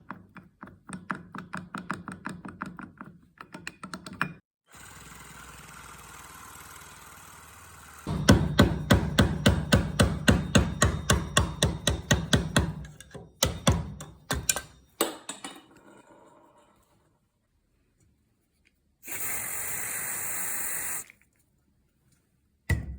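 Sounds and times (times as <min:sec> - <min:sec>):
hand tool striking metal bushing: 0:08.1 - 0:14.8.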